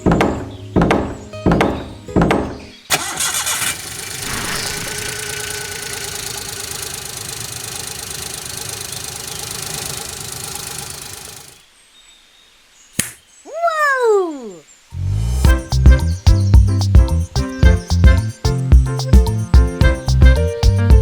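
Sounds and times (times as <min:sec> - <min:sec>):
tractor engine running: 0:02.9 - 0:11.6.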